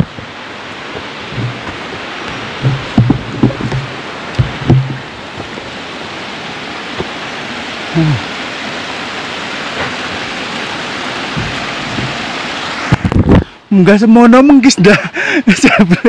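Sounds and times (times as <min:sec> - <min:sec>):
heavy rain: 0:00.0 - 0:16.0
run-off water flowing: 0:00.0 - 0:16.0
short vocal grunts: 0:07.9 - 0:08.3.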